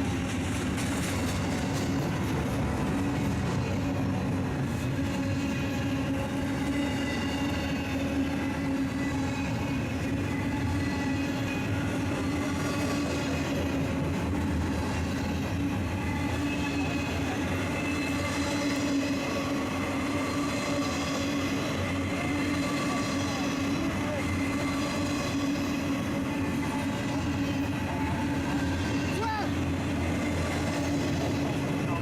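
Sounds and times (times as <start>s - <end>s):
freight train rolling past: 0.0s - 32.0s.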